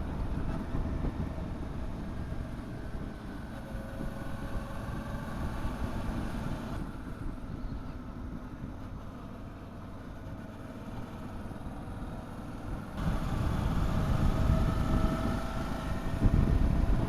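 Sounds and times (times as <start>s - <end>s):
motorcycle engine running: 9.5s - 17.0s.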